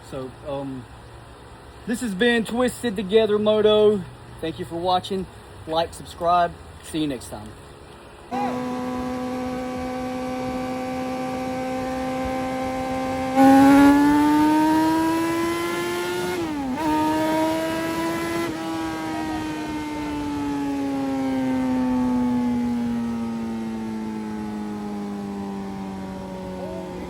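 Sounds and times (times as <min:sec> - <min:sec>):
motorcycle engine revving: 0:08.3 - 0:27.0.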